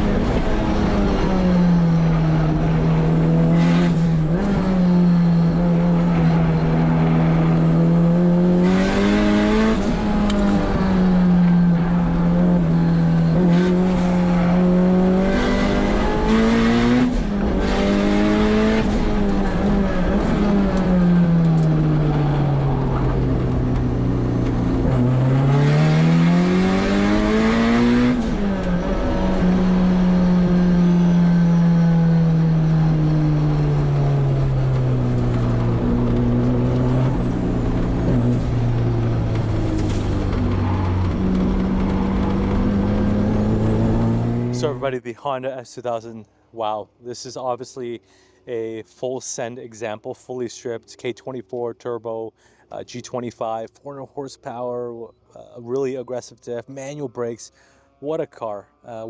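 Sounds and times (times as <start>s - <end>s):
race car engine revving: 0.0s - 44.9s.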